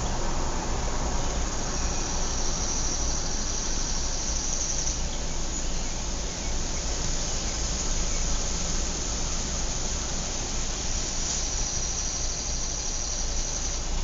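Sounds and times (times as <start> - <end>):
distant traffic rumble: 0.0 - 4.5
insect trill: 10.8 - 13.9.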